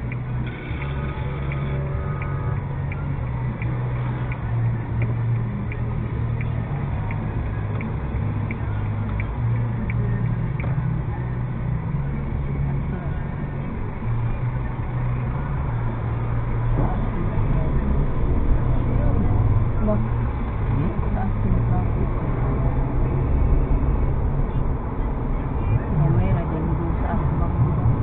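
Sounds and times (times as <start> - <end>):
light regular ticking: 0.0 - 16.8
car engine running: 0.0 - 28.0.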